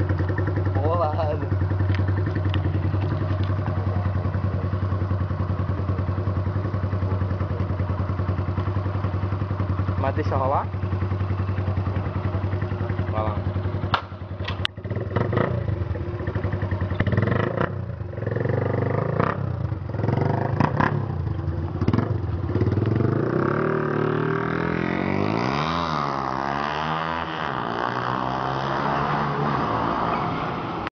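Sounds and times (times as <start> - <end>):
exhaust crackling and popping: 0.0 - 4.1, 19.4 - 23.1
motorcycle engine revving: 0.0 - 30.9.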